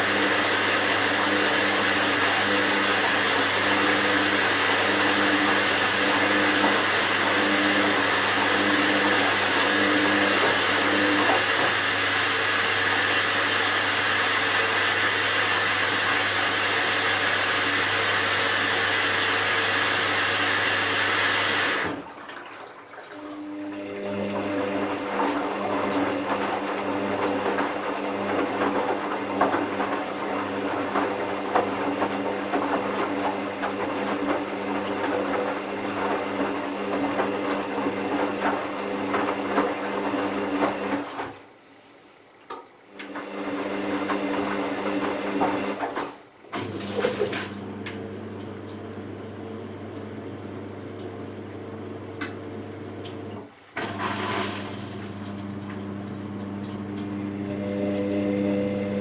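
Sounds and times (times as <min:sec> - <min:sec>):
washing machine motor hum: 0:00.0 - 0:41.6, 0:42.8 - 0:59.0
water sloshing in drum: 0:21.9 - 0:41.2.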